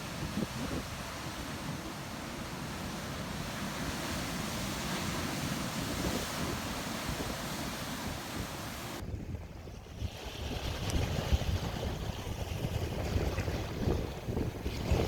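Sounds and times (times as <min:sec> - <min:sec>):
ocean waves breaking: 0:00.0 - 0:09.0.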